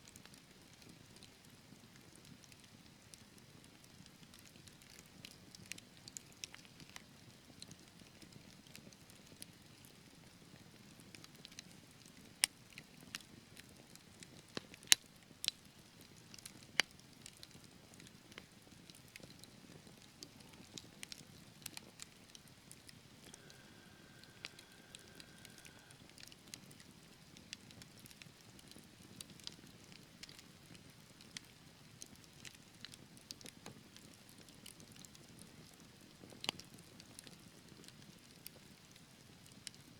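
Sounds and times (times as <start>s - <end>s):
wood fire crackling and popping: 0.2s - 39.9s
faint high whistle: 23.3s - 26.0s.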